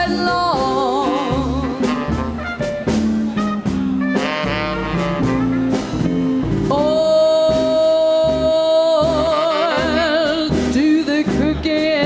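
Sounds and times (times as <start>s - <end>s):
live swing band: 0.0s - 12.0s
held saxophone note: 1.6s - 6.2s.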